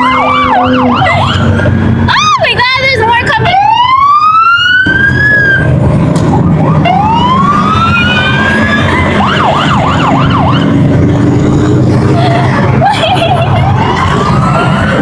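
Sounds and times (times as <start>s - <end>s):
emergency vehicle siren: 0.0s - 15.0s
steady low rumble: 0.0s - 15.0s.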